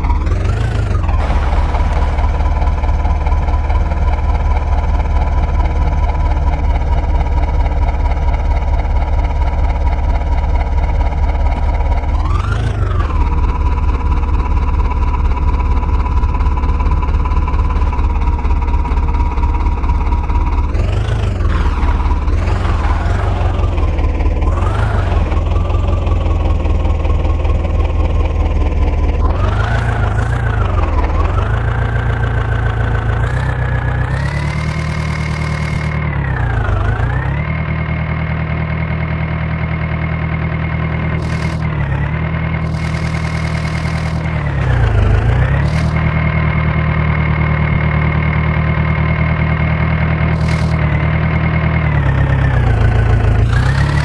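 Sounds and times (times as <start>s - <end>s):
diesel engine throbbing: 0.0s - 54.0s
high whine: 1.2s - 7.3s, 21.5s - 26.1s.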